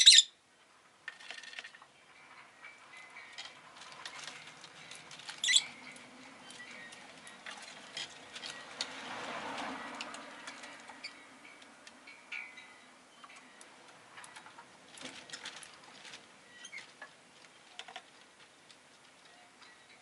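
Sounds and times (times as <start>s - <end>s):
lovebird chirp: 0.0s - 0.4s, 5.3s - 7.5s.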